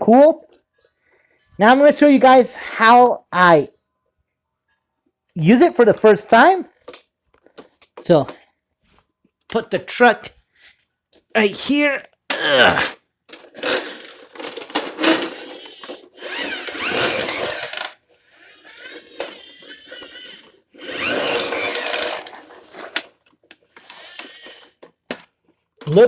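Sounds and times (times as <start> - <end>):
toy mechanism whirring and rattling: 12.8 - 25.2.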